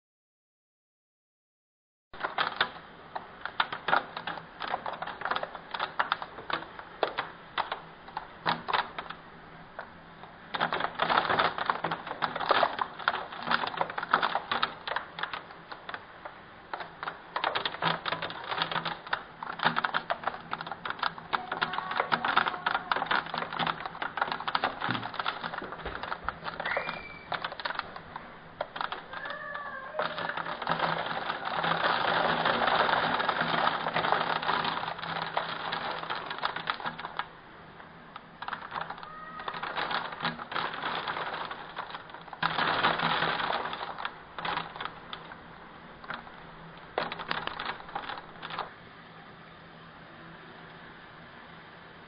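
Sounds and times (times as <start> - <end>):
hailstones clattering: 10.5 - 16.0, 16.7 - 37.3, 38.4 - 48.7.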